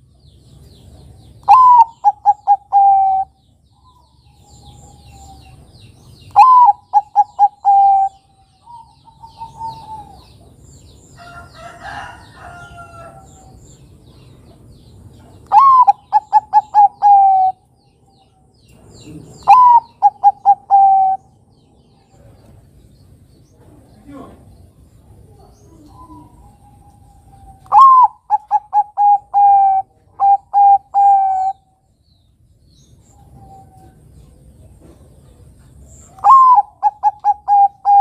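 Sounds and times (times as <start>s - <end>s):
fainter dove calls: 1.4s - 5.6s, 6.3s - 10.3s, 15.5s - 17.6s, 19.4s - 21.2s, 25.7s - 31.6s, 36.1s - 38.0s
dove cooing: 1.4s - 5.7s, 6.3s - 10.5s, 15.5s - 17.6s, 19.4s - 21.4s, 25.2s - 31.7s, 36.1s - 38.0s.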